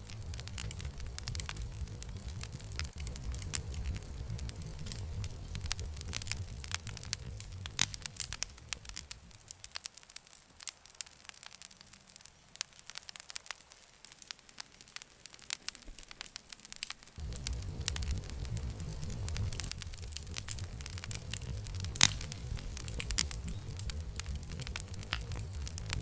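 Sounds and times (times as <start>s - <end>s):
low rumble: 0.0s - 9.6s, 17.2s - 26.0s
campfire crackling: 0.0s - 26.0s.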